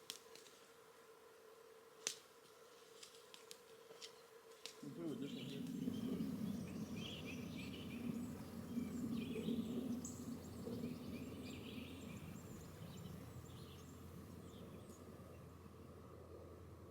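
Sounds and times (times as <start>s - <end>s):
low outdoor hum: 0.0s - 16.9s
birds chirping: 5.0s - 15.6s.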